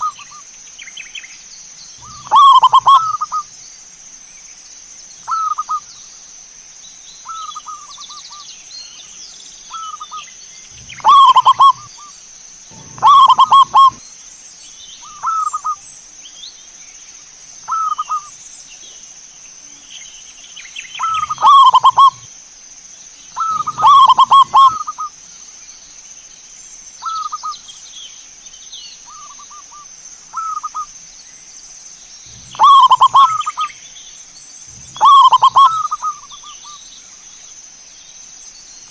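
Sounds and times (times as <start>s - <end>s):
doves cooing: 2.0s - 3.4s, 10.7s - 12.1s, 12.7s - 14.0s, 21.0s - 22.3s, 23.4s - 25.1s, 32.3s - 33.7s, 34.7s - 36.5s.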